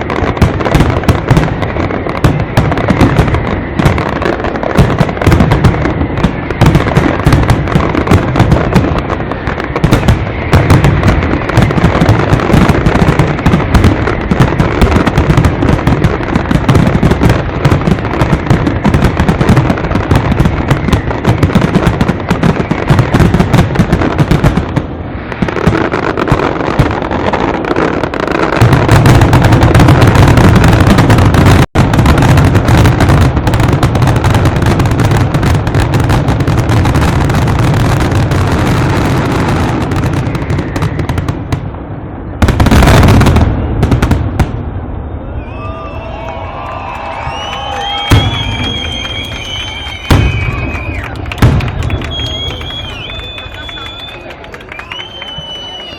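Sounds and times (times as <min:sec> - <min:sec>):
heavy low firework booms: 0:00.0 - 0:45.5, 0:47.1 - 0:53.4
fireworks bangs and crackles: 0:00.0 - 0:55.9.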